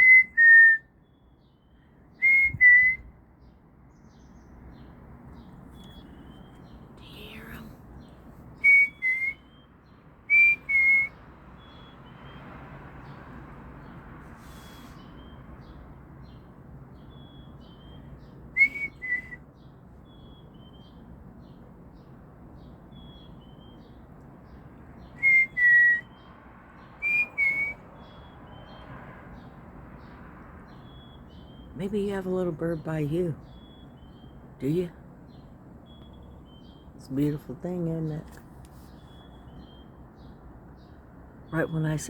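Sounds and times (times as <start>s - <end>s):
songbird whistling: 0.0s - 3.1s, 8.6s - 12.5s, 14.5s - 15.8s, 17.0s - 21.0s, 22.9s - 24.0s, 25.1s - 26.3s, 27.0s - 28.8s, 30.7s - 31.8s, 33.4s - 34.4s, 35.9s - 36.9s.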